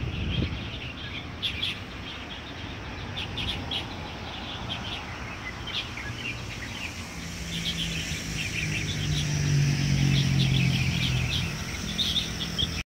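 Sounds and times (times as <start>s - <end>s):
small birds chirping: 0.0s - 12.8s
passing vehicle engine drone: 2.6s - 12.8s.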